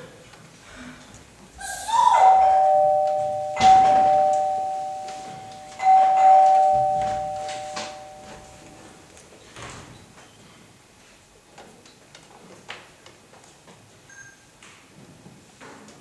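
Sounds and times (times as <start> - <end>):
two-note doorbell chime: 1.9 - 9.0.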